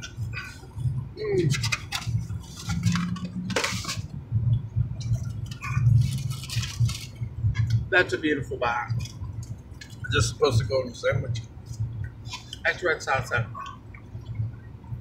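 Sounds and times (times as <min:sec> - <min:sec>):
low hum: 0:00.0 - 0:15.0
food rustling in hands: 0:01.4 - 0:04.1, 0:05.0 - 0:07.7.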